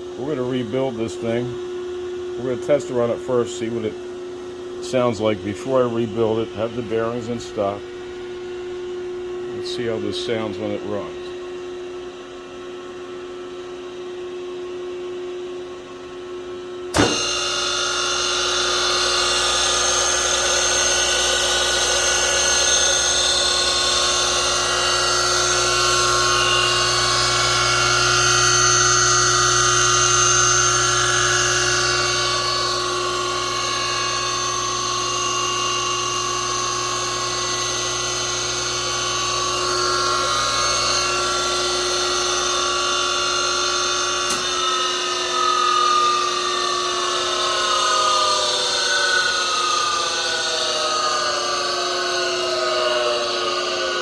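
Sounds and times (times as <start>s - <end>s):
steady hum: 0.0s - 54.0s
saw motor whining: 16.9s - 54.0s.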